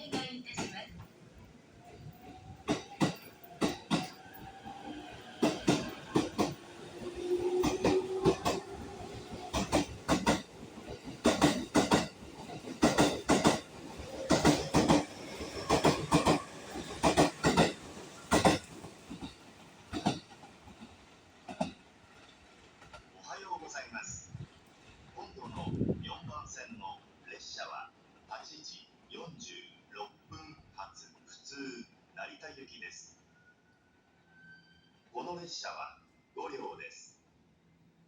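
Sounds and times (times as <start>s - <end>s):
train wheels clacking over rail joints: 2.6s - 4.4s, 5.2s - 23.1s.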